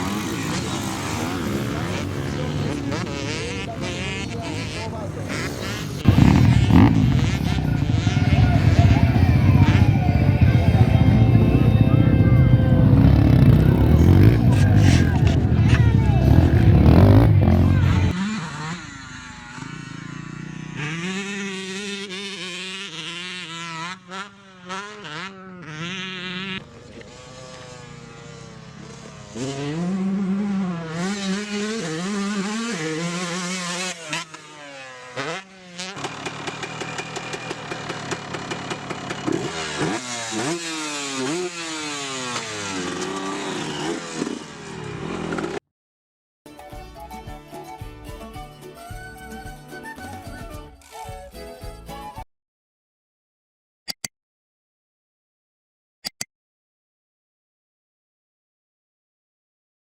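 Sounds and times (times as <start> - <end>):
racing motorcycle engines revving: 0.0 - 45.6.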